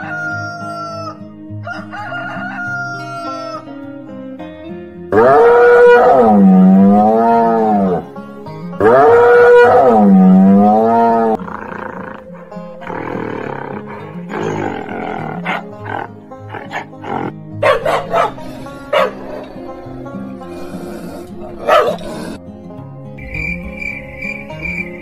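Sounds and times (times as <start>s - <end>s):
background music: 0.0s - 25.0s
animal calls: 8.8s - 22.4s.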